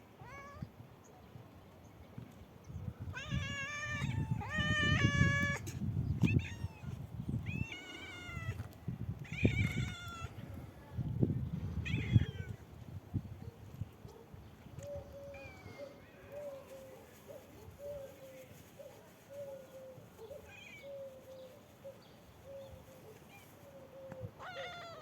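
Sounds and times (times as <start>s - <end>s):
cat meowing: 0.2s - 0.7s, 3.1s - 8.6s, 9.2s - 10.3s, 11.8s - 12.6s.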